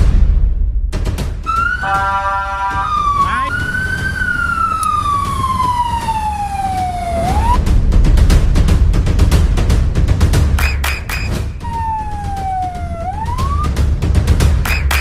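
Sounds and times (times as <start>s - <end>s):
fire engine siren wailing: 1.5s - 7.6s, 11.6s - 13.8s
steady multi-tone horn chord: 1.8s - 3.5s
low engine rumble: 1.9s - 10.6s, 11.2s - 14.7s.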